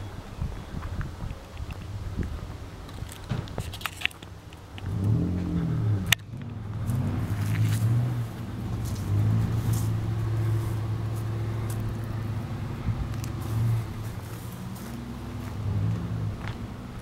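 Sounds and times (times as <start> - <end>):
car engine idling: 4.2 - 17.0.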